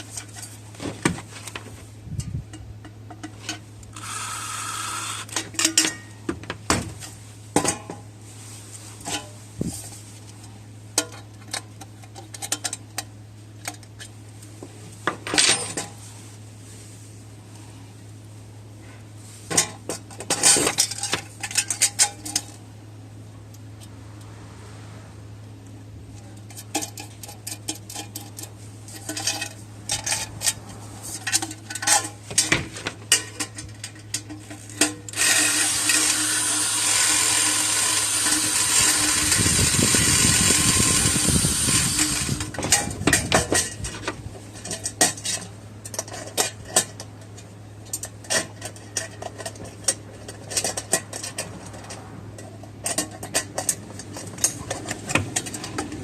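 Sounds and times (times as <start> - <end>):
metal parts clinking: 26.4 - 47.0.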